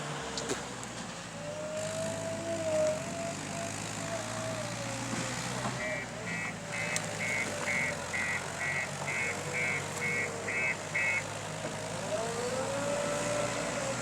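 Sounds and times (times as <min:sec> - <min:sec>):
diesel engine running: 0:01.7 - 0:14.0
reversing alarm beeping: 0:05.8 - 0:11.2.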